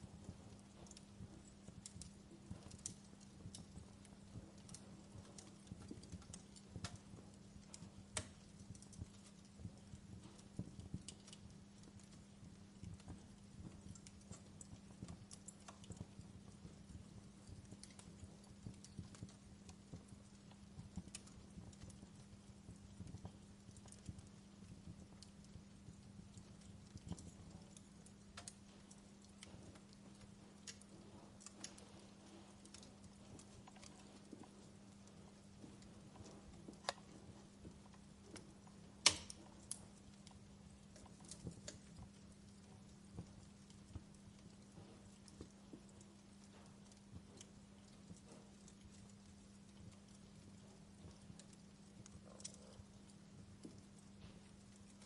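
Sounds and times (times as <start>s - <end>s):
faint low hum: 0.0s - 55.0s
wood fire crackling: 0.0s - 55.0s.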